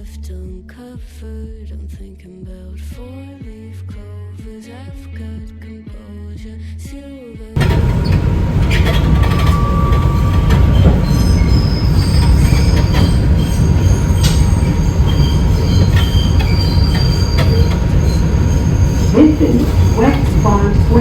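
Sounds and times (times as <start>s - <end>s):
high-pitched wheel squeals: 7.6s - 21.0s
subway train wheels rumbling: 7.6s - 21.0s.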